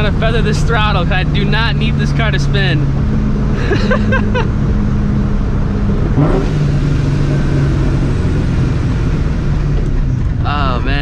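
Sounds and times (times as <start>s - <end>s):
loud car engine revving: 0.0s - 11.0s.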